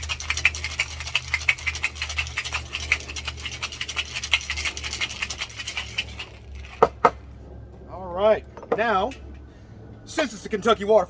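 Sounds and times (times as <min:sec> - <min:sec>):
ice rattling in cocktail shaker: 0:00.0 - 0:07.1
steady low hum: 0:00.0 - 0:11.0.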